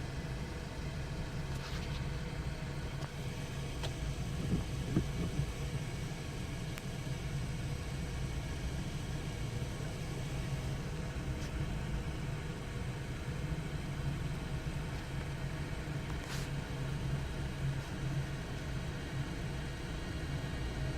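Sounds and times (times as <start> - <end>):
train rumbling: 3.6 - 6.0.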